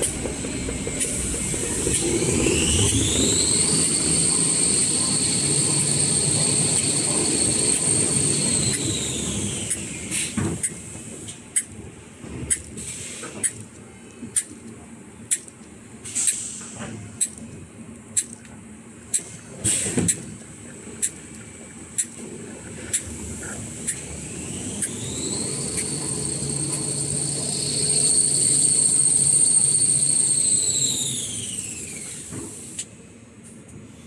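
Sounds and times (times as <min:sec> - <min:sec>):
machine whine: 0:00.0 - 0:16.4, 0:19.0 - 0:32.8
short hiss of air: 0:16.0 - 0:16.9, 0:19.2 - 0:20.2, 0:31.9 - 0:32.9.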